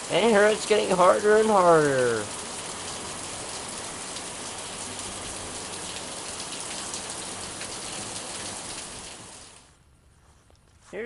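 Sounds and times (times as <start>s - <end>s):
heavy rain pouring: 0.0s - 9.8s.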